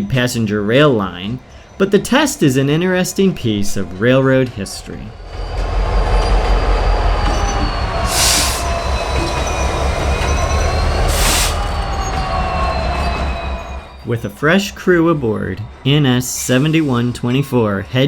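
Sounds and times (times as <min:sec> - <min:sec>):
diesel locomotive rumbling: 0:00.6 - 0:16.9
wheels squealing on rail: 0:05.0 - 0:14.2
air hiss bursts: 0:08.0 - 0:09.5, 0:10.9 - 0:11.8.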